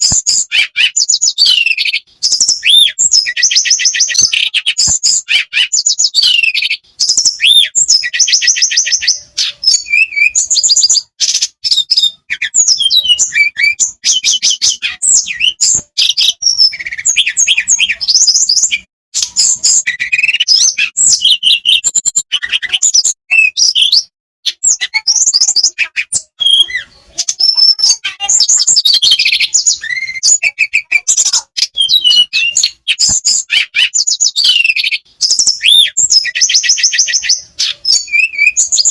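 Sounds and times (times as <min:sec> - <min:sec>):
bird singing trills: 0:00.0 - 0:38.9.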